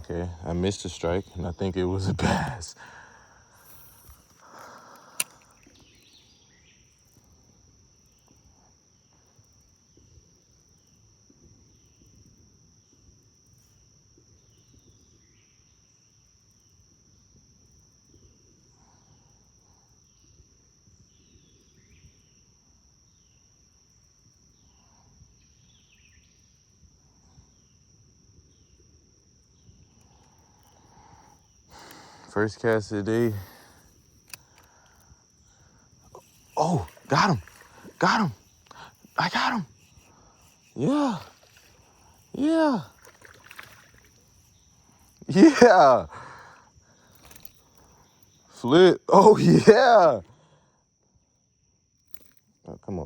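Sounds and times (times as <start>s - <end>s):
high-pitched insect drone: 0.0s - 9.6s, 29.5s - 50.2s.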